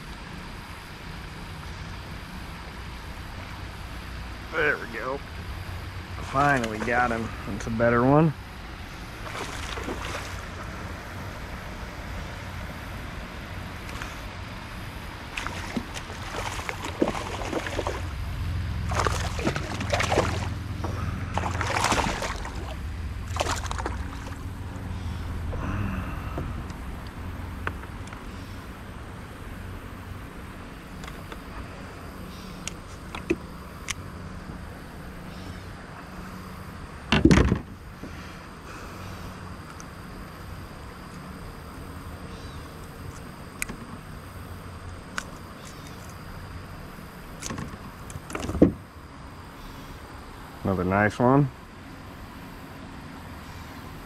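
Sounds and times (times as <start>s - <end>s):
river water sloshing and gurgling: 5.6s - 7.7s, 8.4s - 27.6s
water splashes and knocks: 9.2s - 10.6s, 15.3s - 18.1s, 18.9s - 24.4s, 37.1s - 37.8s, 47.4s - 48.8s.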